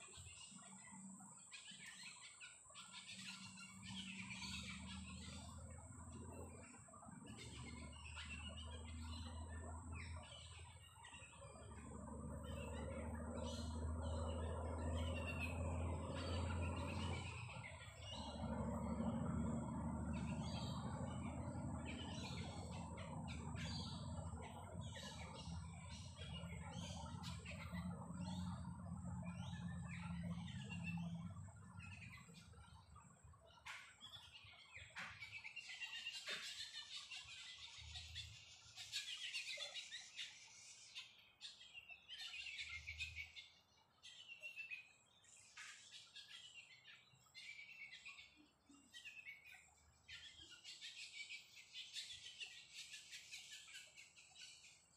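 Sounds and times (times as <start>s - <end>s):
birds chirping and calling: 0.0s - 54.9s
low droning hum: 2.9s - 33.1s.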